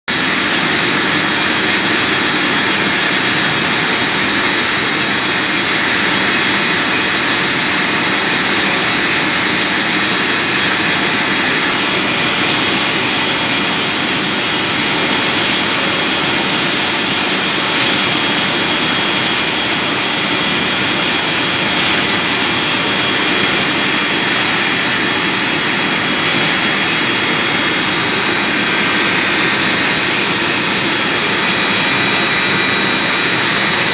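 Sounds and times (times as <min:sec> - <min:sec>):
metal lathe whining: 0:11.1 - 0:14.8.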